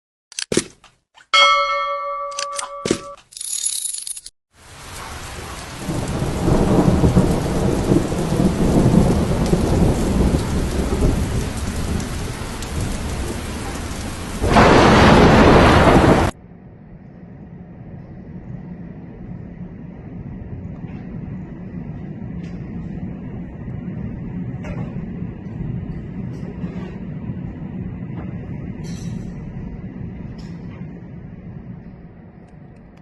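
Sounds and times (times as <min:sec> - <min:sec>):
heavy rain: 0:04.5 - 0:16.4, 0:20.8 - 0:32.2
thunder rumbling: 0:04.6 - 0:33.0.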